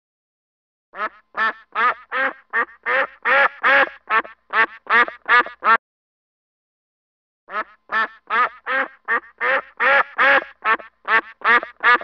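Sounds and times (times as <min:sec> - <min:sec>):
waterfowl calling: 0:01.0 - 0:05.8, 0:07.5 - 0:12.0.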